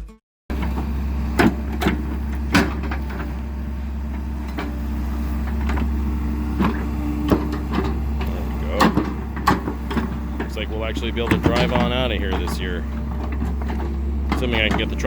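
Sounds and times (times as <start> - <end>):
vehicle engine rumbling: 0.5 - 15.0
sharp clicks and knocks: 6.6 - 15.0.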